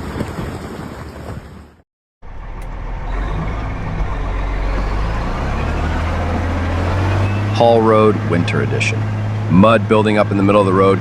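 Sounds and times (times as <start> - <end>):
heavy vehicle engine humming: 2.2 - 11.0.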